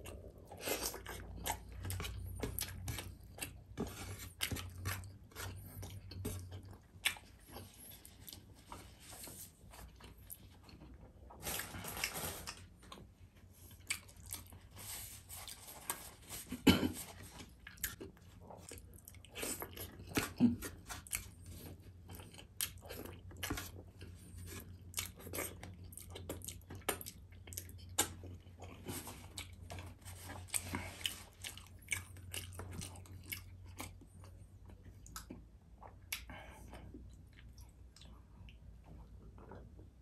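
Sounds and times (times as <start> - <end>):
wet chewing: 13.7 - 16.1, 16.8 - 39.6.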